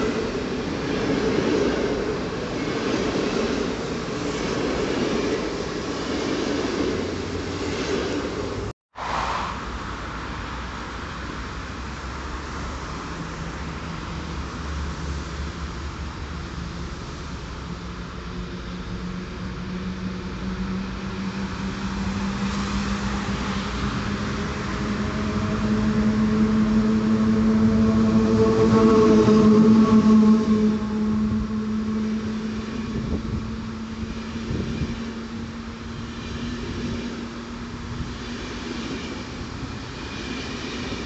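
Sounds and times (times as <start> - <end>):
road traffic: 0.0 - 41.0
electric locomotive hum: 11.1 - 41.0.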